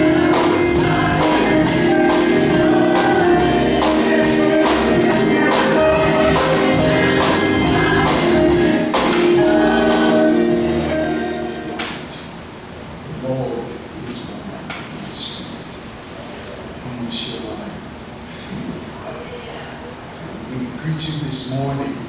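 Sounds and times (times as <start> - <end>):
tambourine beat: 0.0 - 11.0
choir singing gospel music: 0.0 - 12.4.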